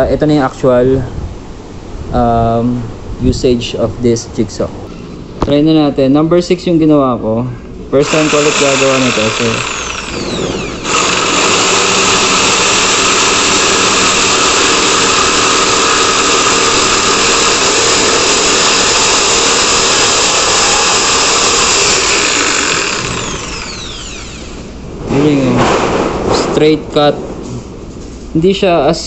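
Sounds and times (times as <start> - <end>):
electric jigsaw cutting wood: 8.0 - 24.8.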